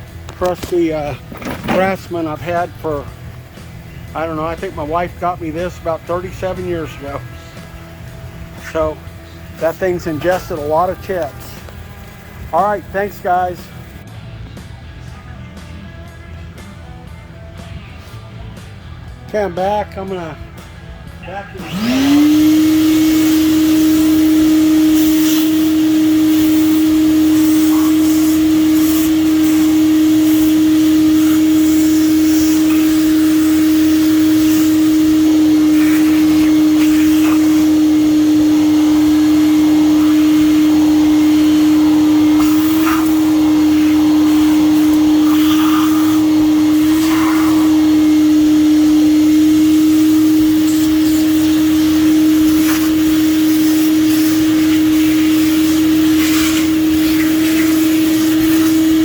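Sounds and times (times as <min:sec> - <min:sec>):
shop vac whine: 0:00.0 - 0:59.0
metal chips rattling in hose: 0:50.7 - 0:59.0.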